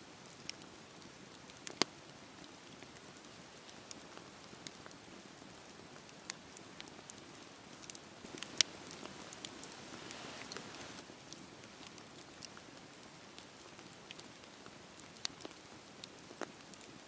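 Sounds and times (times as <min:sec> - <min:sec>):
campfire crackling and popping: 0:00.2 - 0:17.0
fire hissing: 0:08.2 - 0:11.0.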